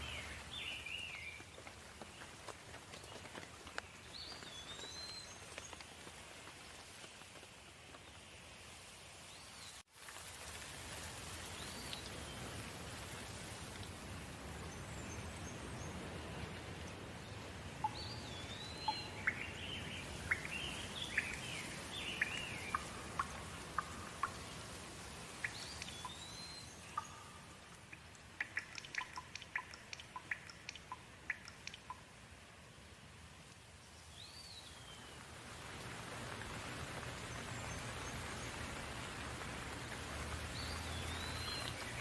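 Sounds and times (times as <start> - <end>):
steady rain falling: 0.0 - 42.0
sharp water drips: 10.0 - 42.0.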